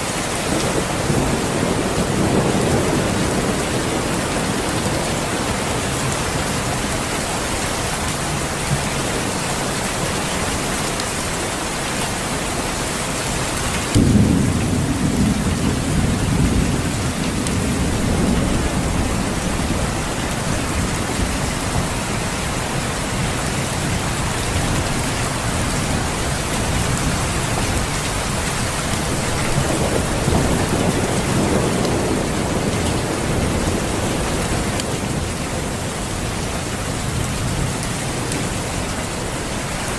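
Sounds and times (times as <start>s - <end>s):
steady rain: 0.0s - 39.9s
thunder rumble: 13.8s - 38.9s.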